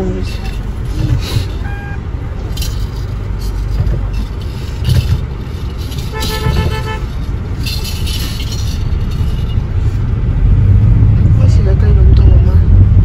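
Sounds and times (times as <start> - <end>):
road vehicle engine rumbling: 0.0 - 13.0
vehicle horn honking: 1.5 - 2.0, 6.0 - 7.2.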